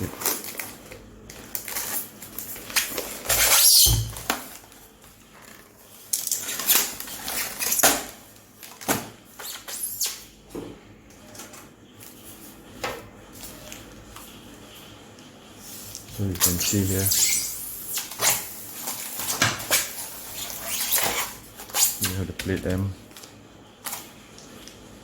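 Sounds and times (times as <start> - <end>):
styrofoam scraping and squeaking: 1.5 - 4.6, 5.4 - 8.2, 9.3 - 10.3, 15.6 - 22.3.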